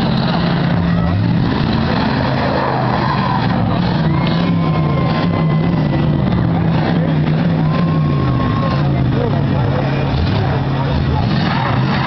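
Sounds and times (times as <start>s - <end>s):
car engines revving loudly: 0.0s - 12.0s.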